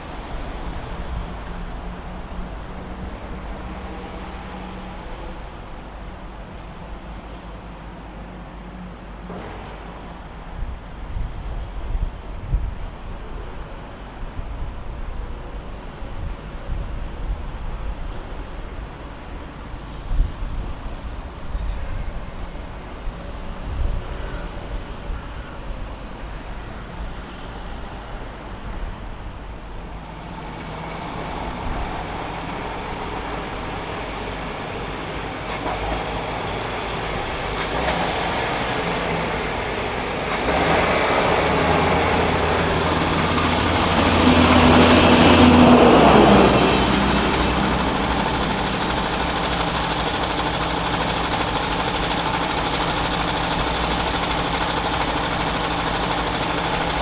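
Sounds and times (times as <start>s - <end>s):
train passing: 0.0s - 7.7s, 17.5s - 57.0s.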